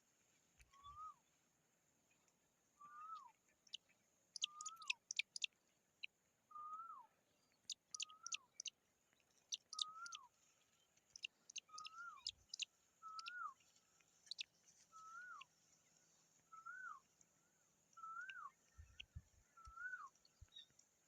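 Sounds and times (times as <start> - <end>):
bird whistled notes: 16.5 - 17.0.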